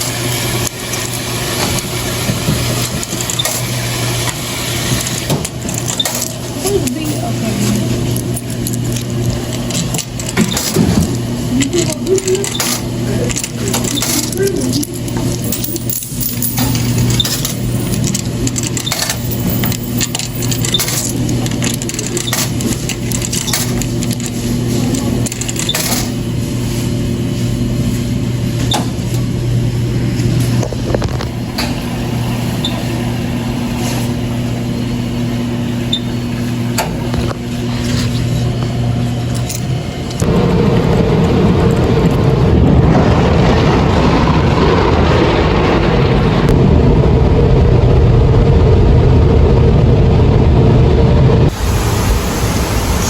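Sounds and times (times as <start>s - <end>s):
steady mechanical hum: 0.0s - 53.0s.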